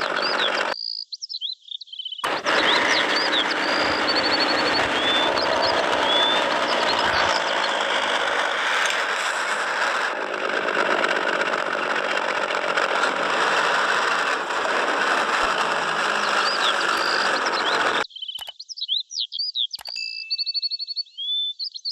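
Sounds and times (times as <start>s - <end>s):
motor running: 0.0s - 0.8s, 2.2s - 18.0s
birds chirping: 0.0s - 8.5s, 14.3s - 21.9s.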